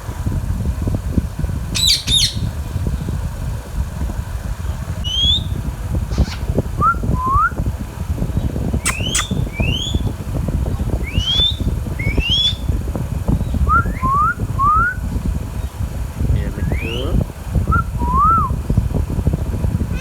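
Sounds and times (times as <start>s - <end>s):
steady low rumble: 0.0s - 20.0s
parakeet whistled calls: 1.7s - 2.5s, 5.0s - 7.6s, 8.8s - 10.1s, 11.0s - 12.7s, 16.6s - 17.1s
sharp clicks: 8.9s - 9.4s.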